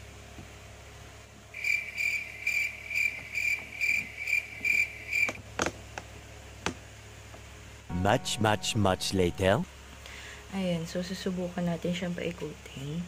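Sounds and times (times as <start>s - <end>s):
faint low hum: 7.8s - 13.0s.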